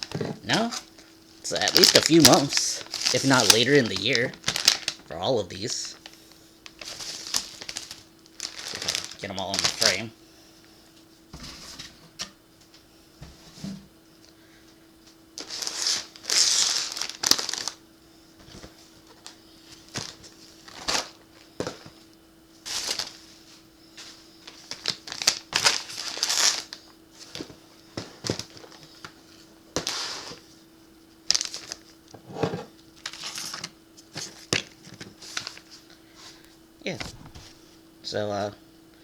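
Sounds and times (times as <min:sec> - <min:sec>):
plastic packaging crinkling: 0:00.0 - 0:10.1, 0:15.4 - 0:17.8, 0:24.4 - 0:27.5, 0:31.2 - 0:32.1, 0:33.0 - 0:35.9
faint steady hum: 0:00.0 - 0:39.0.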